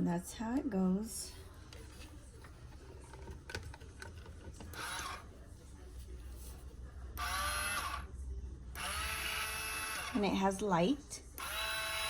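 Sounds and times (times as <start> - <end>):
plastic parts clicking and rattling: 1.7 - 5.2.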